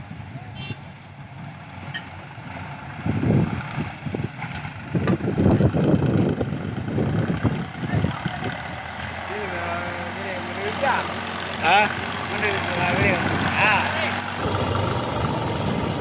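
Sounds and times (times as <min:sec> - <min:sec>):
diesel machinery engine rumbling: 0:00.0 - 0:16.0.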